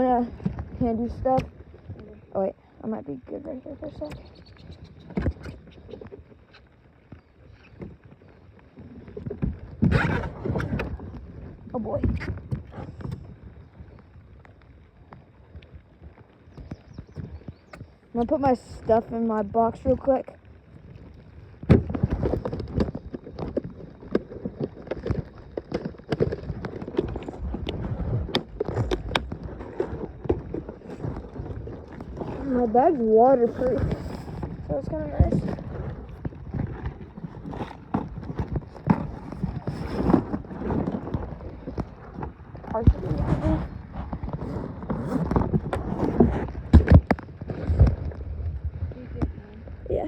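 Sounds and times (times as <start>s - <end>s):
knocks and bumps on a small boat: 21.6s - 49.4s.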